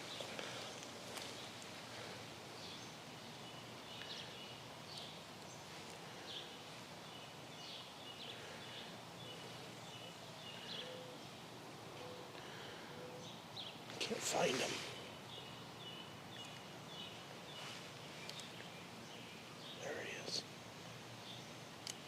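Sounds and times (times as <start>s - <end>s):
faint background hiss: 0.0s - 22.0s
bird chirps: 2.6s - 11.3s, 13.0s - 20.4s.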